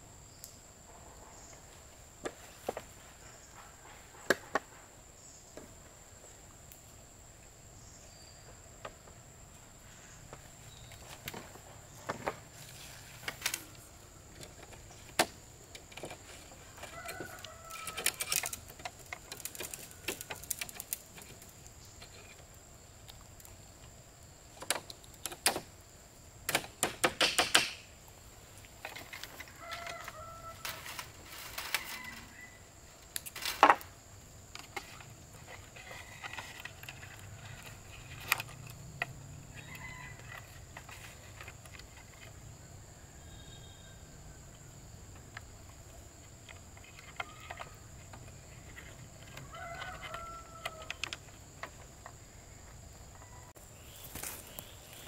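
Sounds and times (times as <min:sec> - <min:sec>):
high insect drone: 0:00.0 - 0:55.0
sharp clicks and knocks: 0:26.5 - 0:27.8.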